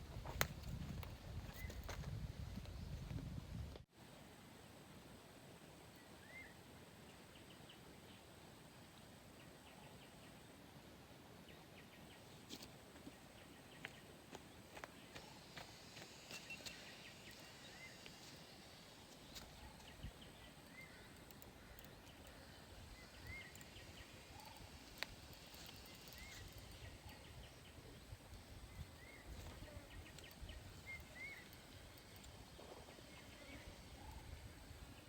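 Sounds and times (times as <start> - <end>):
small clicks: 20.7 - 22.4.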